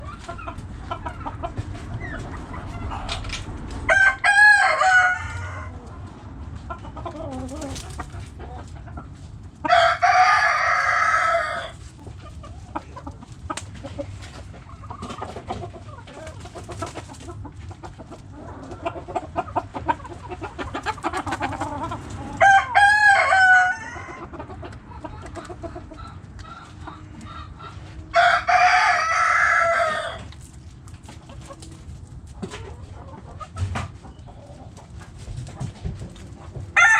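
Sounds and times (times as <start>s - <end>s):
roosters crowing: 0.0s - 6.1s, 9.5s - 12.0s, 18.2s - 24.6s, 25.2s - 30.6s, 36.4s - 36.9s
hens clucking: 0.0s - 36.9s.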